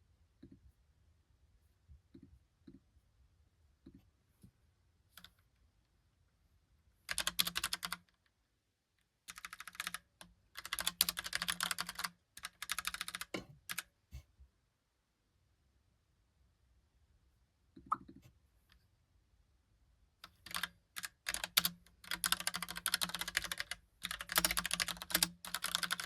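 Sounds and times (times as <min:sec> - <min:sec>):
mechanical keyboard typing: 0:07.1 - 0:08.1, 0:09.3 - 0:13.9, 0:20.2 - 0:26.0.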